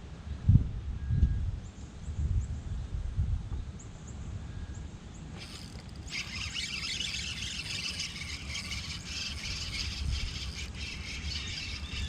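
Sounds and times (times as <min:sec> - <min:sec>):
wind rumble on microphone: 0:00.0 - 0:04.8, 0:07.6 - 0:12.0
fishing reel whirring: 0:05.3 - 0:12.0.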